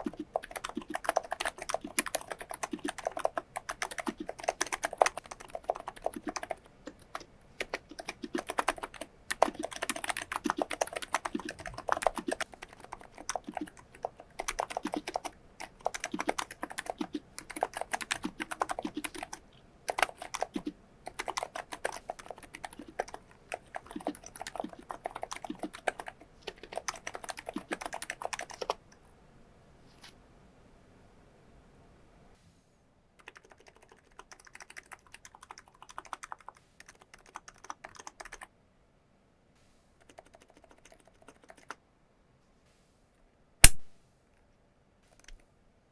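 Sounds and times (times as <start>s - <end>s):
typing on a keyboard: 0.0s - 28.8s, 33.2s - 38.5s, 40.0s - 41.8s.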